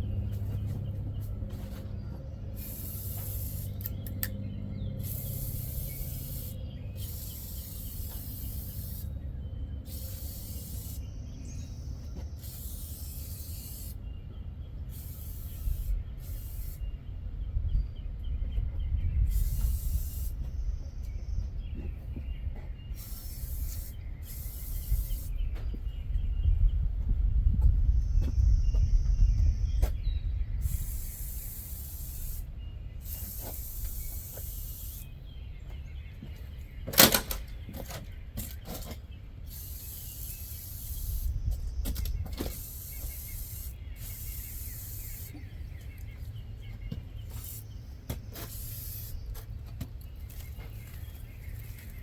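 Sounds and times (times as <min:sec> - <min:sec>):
aerosol can spraying: 0:02.6 - 0:04.3, 0:05.0 - 0:09.1, 0:09.9 - 0:11.1, 0:12.4 - 0:14.0, 0:14.9 - 0:16.8, 0:19.3 - 0:20.4, 0:23.0 - 0:25.3, 0:30.6 - 0:32.4, 0:33.0 - 0:35.1, 0:39.5 - 0:41.4, 0:42.4 - 0:46.1, 0:47.3 - 0:49.5, 0:50.3 - 0:52.0.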